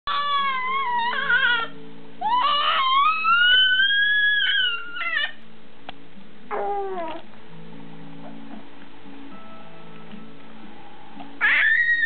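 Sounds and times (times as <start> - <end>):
soft background music: 0.1 - 12.0
kitten meowing: 11.4 - 12.0.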